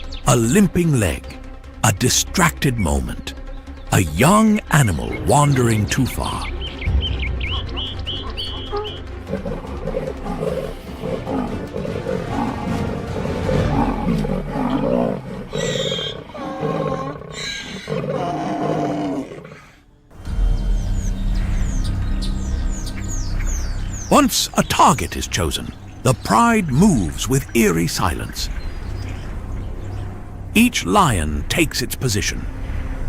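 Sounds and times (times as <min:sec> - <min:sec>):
background music: 0:00.0 - 0:33.0
birds chirping: 0:00.0 - 0:33.0
lions roaring and growling: 0:08.2 - 0:19.9
low rumble: 0:20.1 - 0:24.2.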